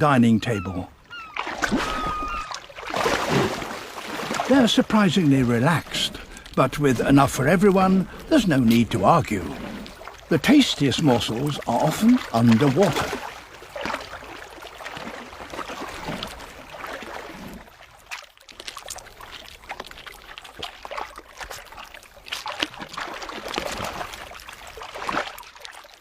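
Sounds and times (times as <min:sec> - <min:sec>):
water sloshing and splashing: 0:00.0 - 0:26.0.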